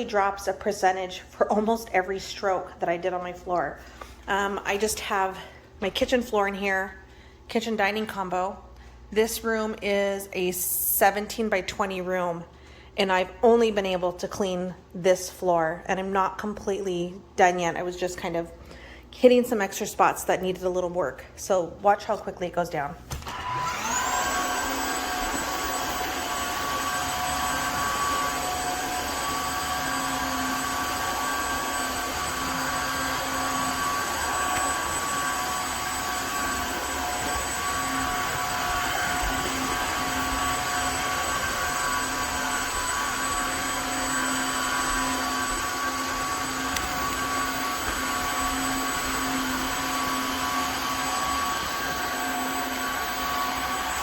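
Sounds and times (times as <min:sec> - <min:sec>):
floor cleaner motor whine: 0:23.1 - 0:54.0.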